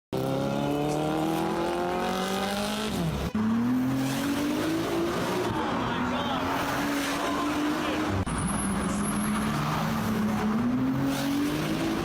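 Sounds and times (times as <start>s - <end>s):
sports car engine accelerating: 0.2s - 5.8s.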